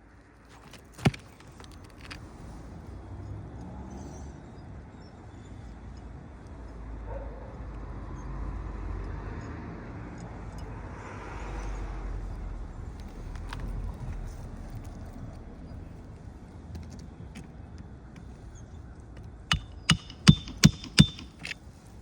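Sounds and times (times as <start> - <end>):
sharp knock: 19.5 - 21.5.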